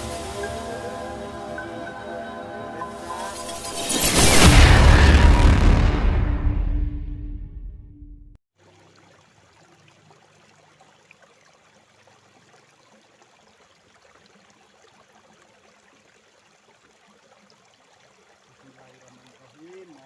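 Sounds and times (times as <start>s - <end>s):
river running over rocks: 0.0s - 1.9s.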